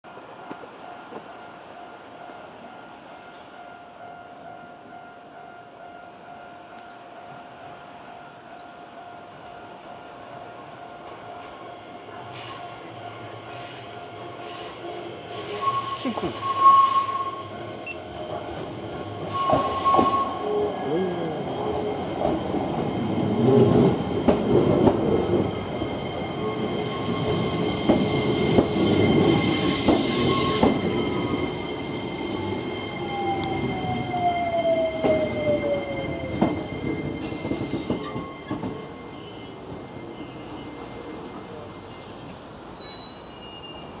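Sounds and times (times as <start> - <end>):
train wheels rumbling on rails: 8.5 - 43.0
train whine falling in pitch: 23.8 - 40.9
high-pitched squeal: 25.4 - 44.0.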